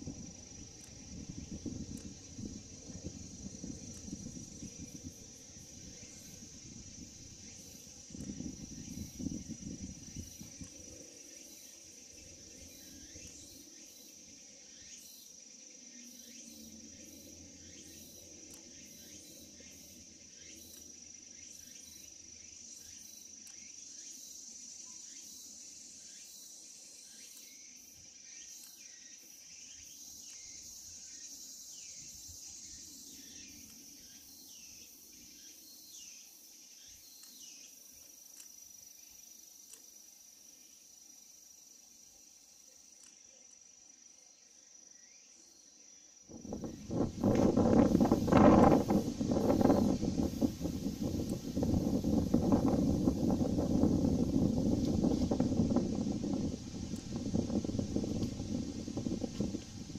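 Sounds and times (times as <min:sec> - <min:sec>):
wind rumble on microphone: 0:00.0 - 0:11.2, 0:46.3 - 0:59.9
insects shrilling drone: 0:00.0 - 0:59.9.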